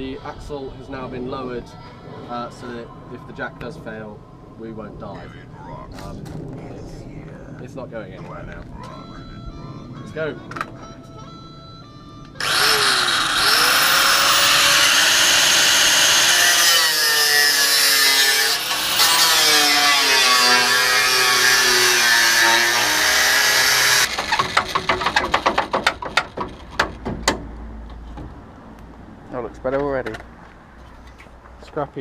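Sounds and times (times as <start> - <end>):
angle grinder cutting steel: 12.4 - 25.3
sharp clicks and knocks: 24.1 - 28.4.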